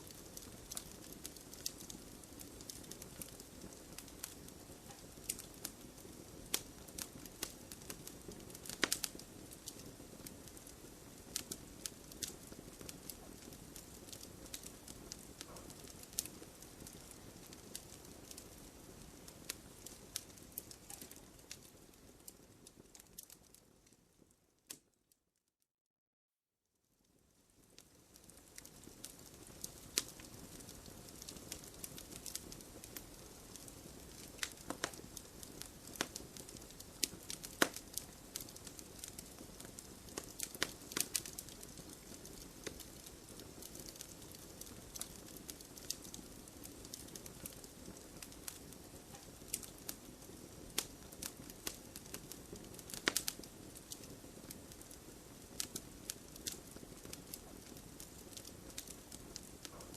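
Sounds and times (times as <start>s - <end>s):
campfire crackling: 0.0s - 24.9s, 27.5s - 59.9s.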